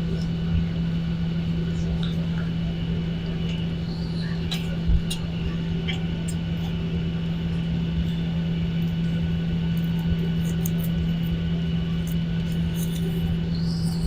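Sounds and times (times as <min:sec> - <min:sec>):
airliner cabin engine hum: 0:00.0 - 0:14.0.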